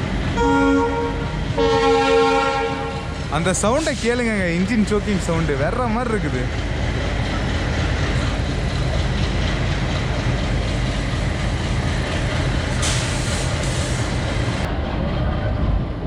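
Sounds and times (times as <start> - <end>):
diesel locomotive engine rumbling: 0.0 - 16.0
train running noise: 0.0 - 16.0
hiss: 12.7 - 14.6.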